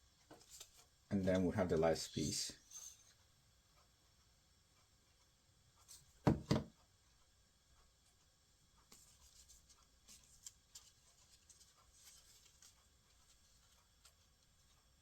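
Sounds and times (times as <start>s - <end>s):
sharp knocks on a table: 6.2s - 6.7s
paper rustling and scraping: 8.9s - 14.3s.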